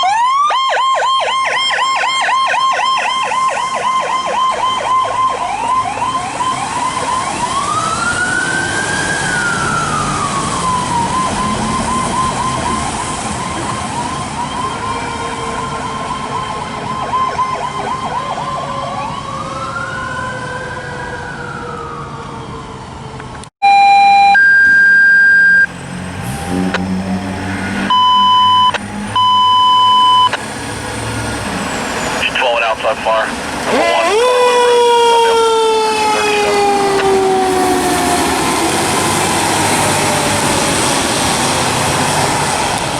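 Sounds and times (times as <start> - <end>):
fire engine sirens yelping and wailing: 0.0 - 42.9
low rising sweep: 23.9 - 32.4.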